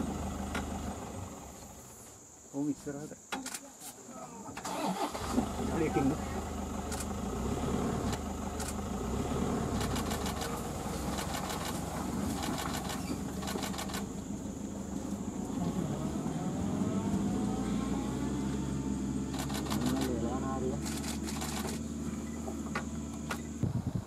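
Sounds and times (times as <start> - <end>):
vehicle engine running: 0.0 - 2.0, 5.0 - 24.0.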